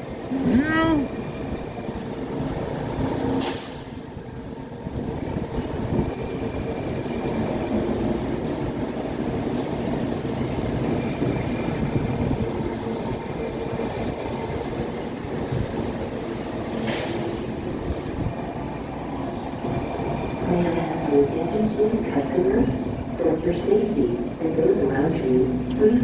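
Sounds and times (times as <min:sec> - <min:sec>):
train rolling rumble: 0:00.0 - 0:26.0.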